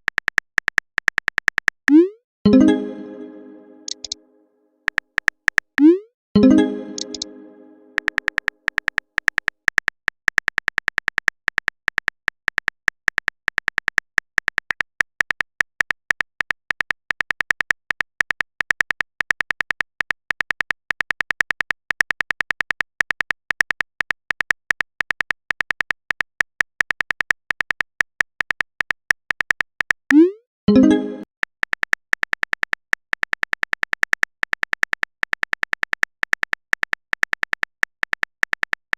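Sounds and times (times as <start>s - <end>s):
keyboard typing clicks: 0.0s - 4.2s, 4.9s - 14.8s.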